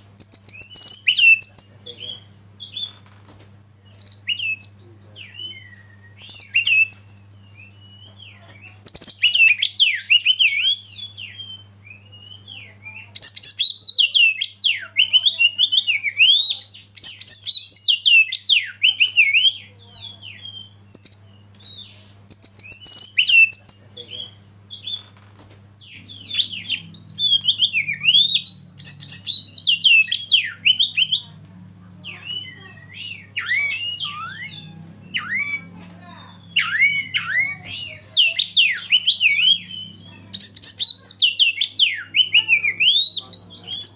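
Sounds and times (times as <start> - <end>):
bird singing whistled phrases: 0.2 - 1.6, 3.9 - 25.1, 25.9 - 31.3, 32.0 - 43.9
steady low hum: 18.7 - 43.9.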